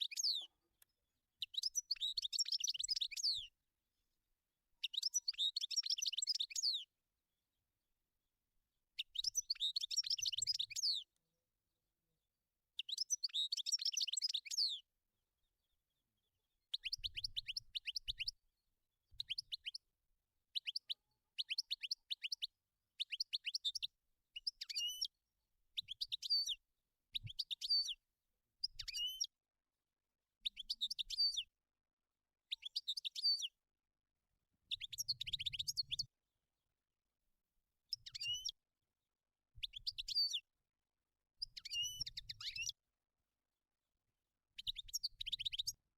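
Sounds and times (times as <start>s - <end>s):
goldfinch singing: 0.0s - 0.5s, 1.4s - 3.4s, 4.8s - 6.8s, 9.0s - 11.0s, 12.8s - 14.8s.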